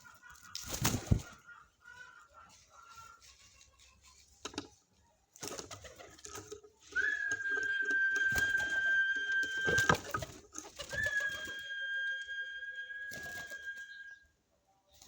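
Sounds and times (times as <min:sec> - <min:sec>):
birds calling: 0:00.0 - 0:14.4
high whistling tone: 0:06.9 - 0:10.2, 0:10.9 - 0:14.2.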